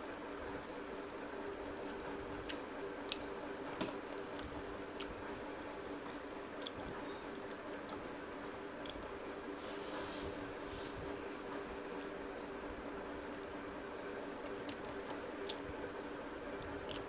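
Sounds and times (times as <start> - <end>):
wet chewing: 1.7 - 8.1, 8.8 - 9.5, 14.3 - 17.0.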